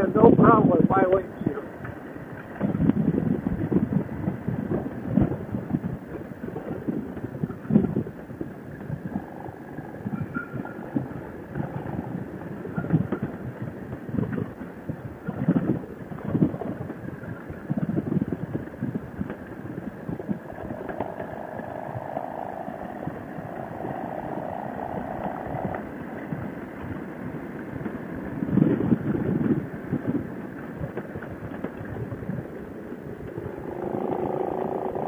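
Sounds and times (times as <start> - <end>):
motorcycle engine drone: 0.0 - 35.0
wind buffeting microphone: 0.0 - 35.0
steady hum: 19.3 - 30.1.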